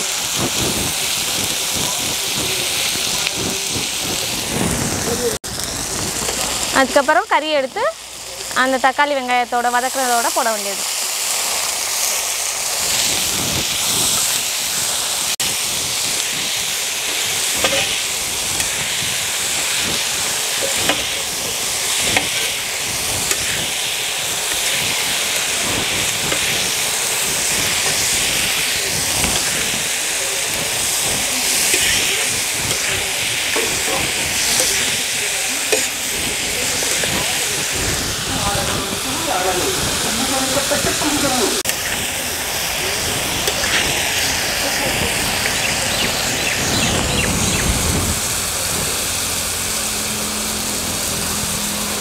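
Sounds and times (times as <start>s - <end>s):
chicken sizzling in oil: 0.0s - 52.0s
spatula knocking and scraping pan: 17.1s - 18.0s, 20.6s - 21.2s, 22.0s - 22.6s.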